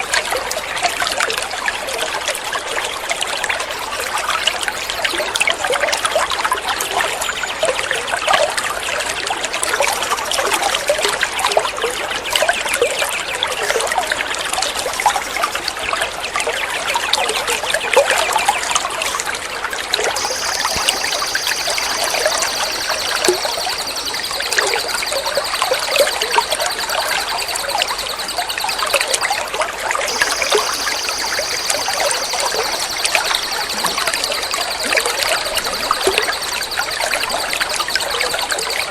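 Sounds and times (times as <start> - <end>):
high-pitched trill: 20.2 - 29.4, 30.1 - 38.9.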